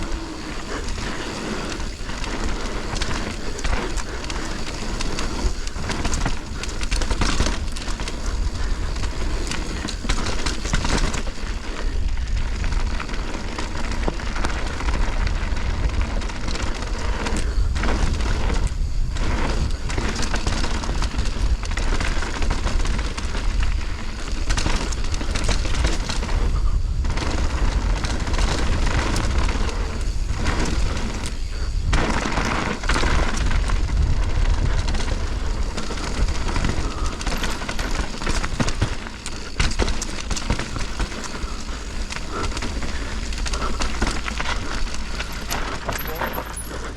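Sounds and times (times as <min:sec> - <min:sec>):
wind buffeting microphone: 0:00.0 - 0:46.0
bike knocking and rattling: 0:00.0 - 0:46.9
tyres rolling on dirt: 0:00.0 - 0:46.9.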